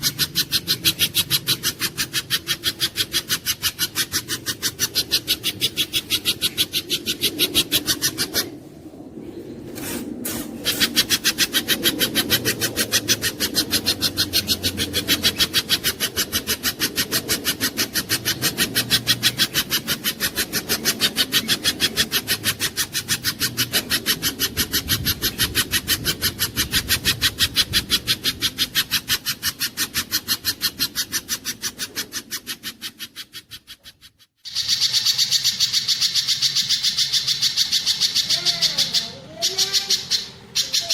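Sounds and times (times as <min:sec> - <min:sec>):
bird rasping calls: 0:00.0 - 0:08.7, 0:09.7 - 0:40.9
low rumble: 0:04.6 - 0:15.3.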